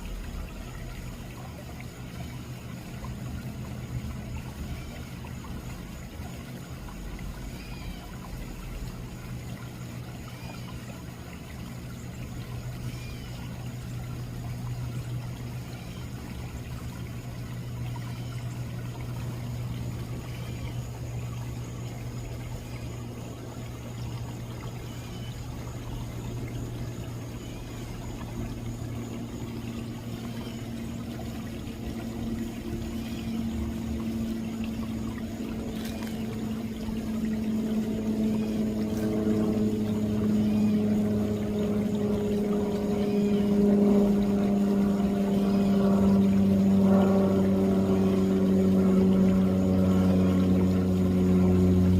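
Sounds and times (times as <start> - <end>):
pond waterfall splashing: 0.0 - 51.9
steady low hum: 0.0 - 51.9
higher hum: 25.5 - 51.9.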